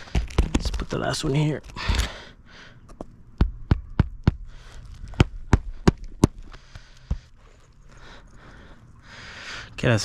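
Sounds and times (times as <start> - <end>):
hammer striking roofing nail: 3.4 - 4.5.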